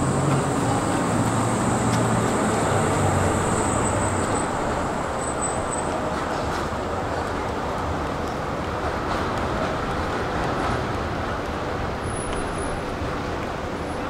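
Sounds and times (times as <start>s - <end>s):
electric train noise: 0.0s - 14.0s.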